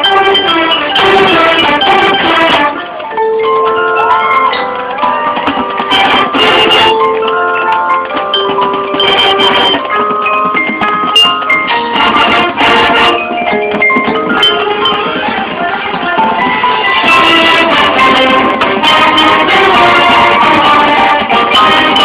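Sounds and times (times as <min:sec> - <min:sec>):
mallet percussion melody: 0:00.0 - 0:22.0
drum hits: 0:05.0 - 0:07.0, 0:08.1 - 0:22.0.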